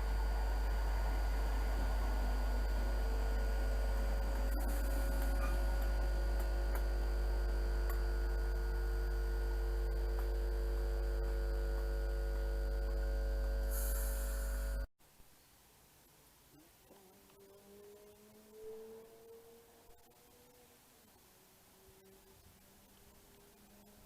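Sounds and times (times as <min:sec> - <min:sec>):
electrical hum: 0:00.0 - 0:14.9
short hiss: 0:13.7 - 0:14.7.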